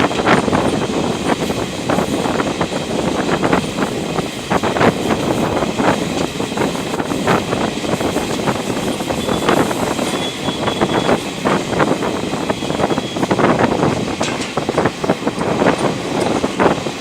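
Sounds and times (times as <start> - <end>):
train rumbling: 0.0 - 17.0
wheels clacking on rails: 0.0 - 17.0.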